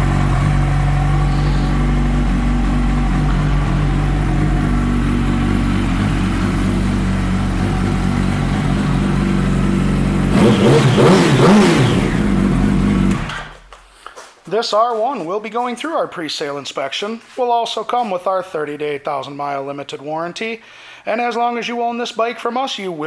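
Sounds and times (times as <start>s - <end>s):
motorcycle engine idling and revving: 0.0s - 13.7s.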